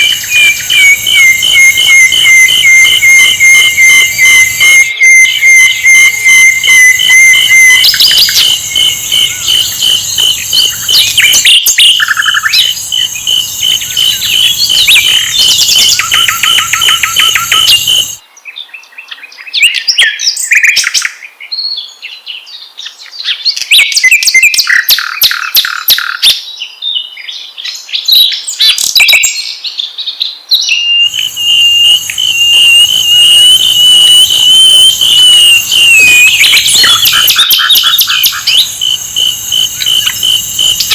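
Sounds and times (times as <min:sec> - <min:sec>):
flycatcher song chirps and trills: 0:00.0 - 0:18.2, 0:31.0 - 0:40.9
steady high tone: 0:00.0 - 0:18.2, 0:31.1 - 0:40.9.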